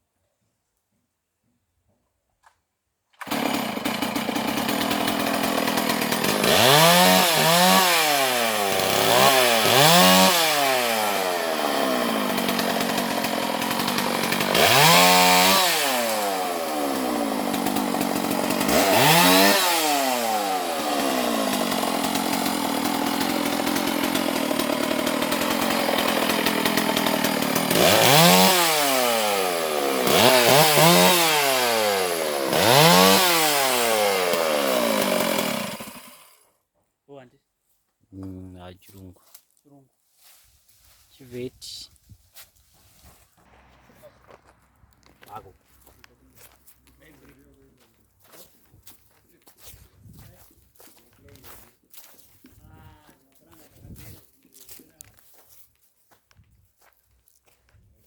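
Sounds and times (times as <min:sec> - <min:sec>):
chainsaw revving: 0:03.2 - 0:36.5, 0:43.4 - 0:49.6.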